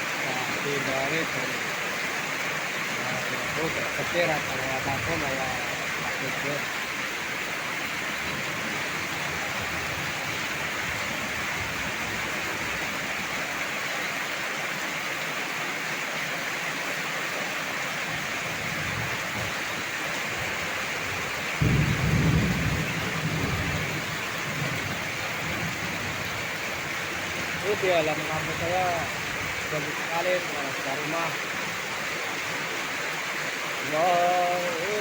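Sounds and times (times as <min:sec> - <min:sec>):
heavy rain pouring: 0:00.0 - 0:35.0
thunder rumbling: 0:21.6 - 0:26.3.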